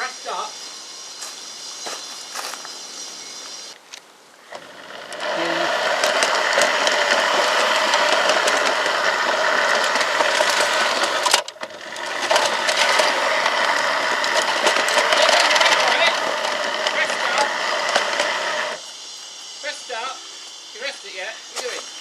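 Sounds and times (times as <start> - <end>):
wheel clatter on track: 4.5 - 18.8
model locomotive motor whir: 4.5 - 22.0.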